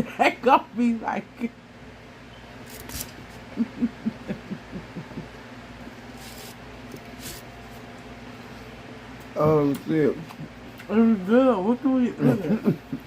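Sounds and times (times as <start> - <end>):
low hums or chuckles: 3.3 - 6.5, 10.0 - 10.8, 12.2 - 13.0.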